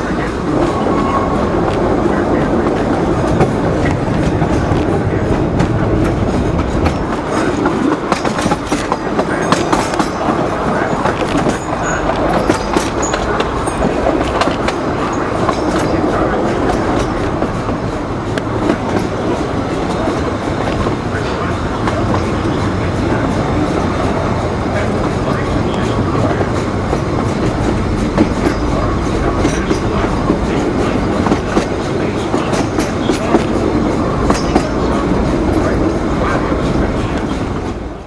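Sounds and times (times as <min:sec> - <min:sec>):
train wheels rumbling: 0:00.0 - 0:38.0
wheels clacking over rail joints: 0:00.0 - 0:38.0.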